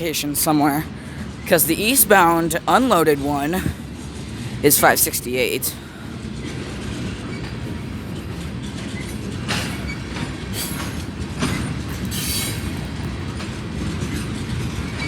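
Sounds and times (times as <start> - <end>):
freight train wheels rumbling on rail: 0.0 - 15.0
high hissing wheel screeches: 8.8 - 13.0.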